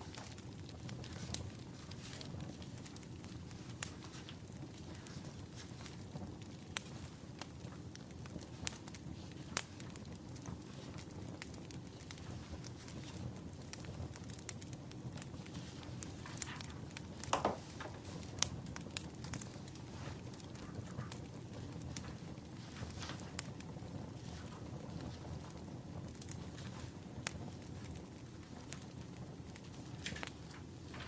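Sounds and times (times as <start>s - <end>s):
firewood crackling and popping: 0.0s - 31.0s
low rush of fire: 0.0s - 31.0s.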